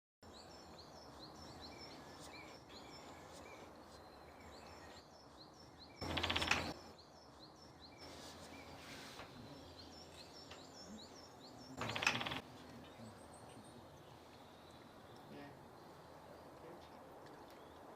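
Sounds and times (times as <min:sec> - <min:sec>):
birds chirping: 0:00.2 - 0:17.9
woodpecker drumming on wood: 0:06.0 - 0:06.9, 0:11.8 - 0:12.5.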